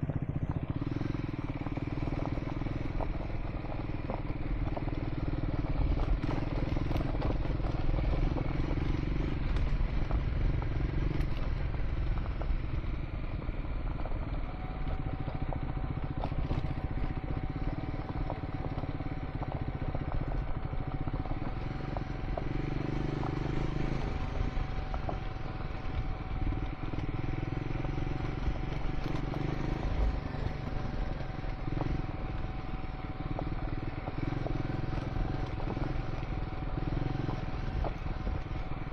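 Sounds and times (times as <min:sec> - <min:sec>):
motorcycle engine revving: 0:00.0 - 0:38.9
stones clattering under tyres: 0:14.8 - 0:38.9.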